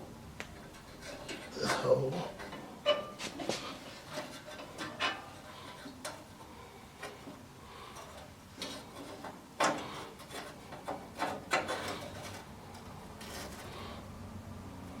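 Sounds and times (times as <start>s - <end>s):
small metal parts clicking and scraping: 3.8s - 14.1s.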